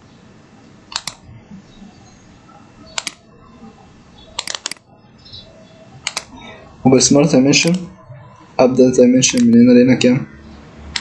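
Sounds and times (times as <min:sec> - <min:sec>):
computer mouse clicks: 0:00.9 - 0:01.2, 0:03.0 - 0:03.2, 0:04.4 - 0:04.8, 0:06.0 - 0:06.3.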